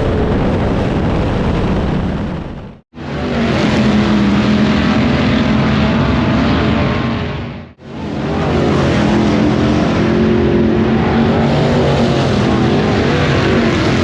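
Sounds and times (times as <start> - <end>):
race car engines droning: 2.9 - 14.0.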